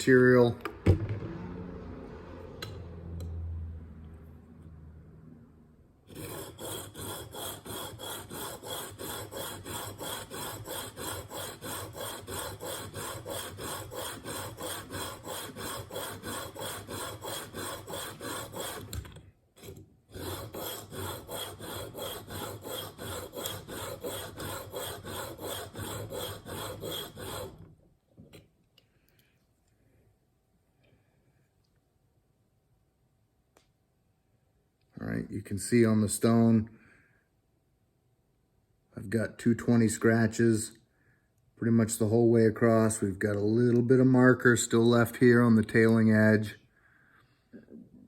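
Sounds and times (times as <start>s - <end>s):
sharpening stone grinding on steel: 6.1s - 27.6s.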